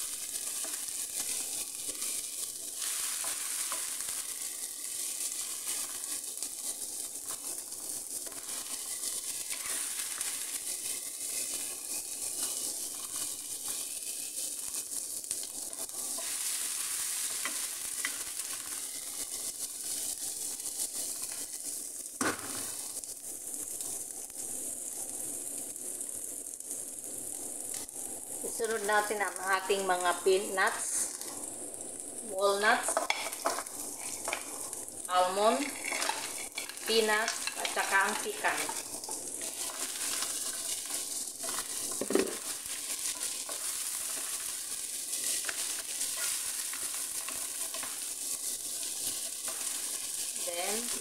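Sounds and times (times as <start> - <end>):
aromatics sizzling in oil: 0.0 - 51.0
wooden spatula scraping a pan: 0.1 - 21.8, 32.8 - 51.0.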